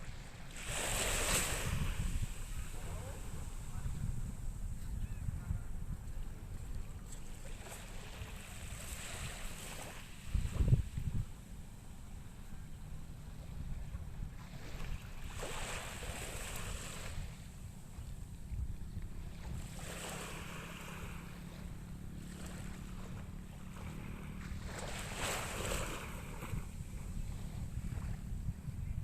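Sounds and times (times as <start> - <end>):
small waves washing in: 0.0 - 4.8, 6.2 - 28.5
wind rumble on microphone: 0.0 - 29.0.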